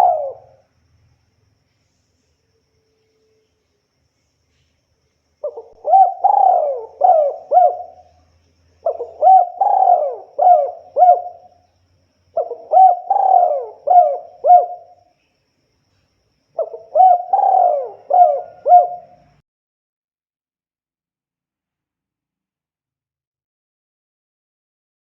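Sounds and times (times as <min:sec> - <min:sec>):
dove cooing: 0:00.0 - 0:00.6, 0:05.4 - 0:08.2, 0:08.8 - 0:11.6, 0:12.4 - 0:15.0, 0:16.6 - 0:19.4.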